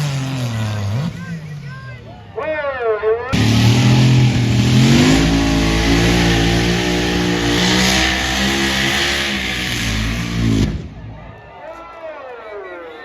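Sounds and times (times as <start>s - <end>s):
truck engine at high revs: 0.0s - 1.5s, 3.4s - 10.9s.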